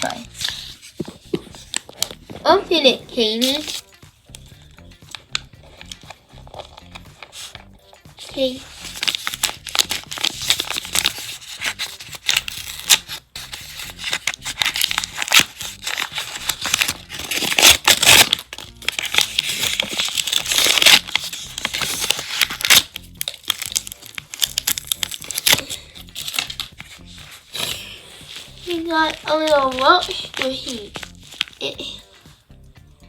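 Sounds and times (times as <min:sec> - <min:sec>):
bag crinkling and tearing: 0:08.3 - 0:31.9.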